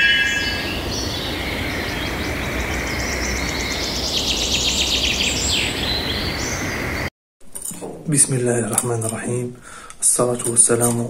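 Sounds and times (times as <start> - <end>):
steady rushing noise: 0.0 - 6.1
birdsong chirps and trills: 0.0 - 7.1.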